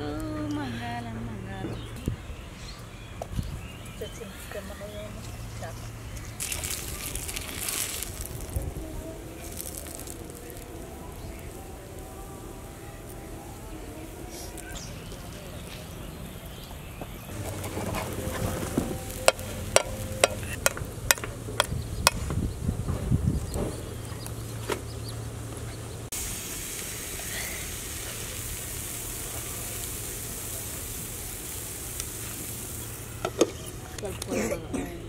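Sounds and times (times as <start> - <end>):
batter sizzling on griddle: 6.4 - 11.6, 17.3 - 22.0, 26.0 - 34.0.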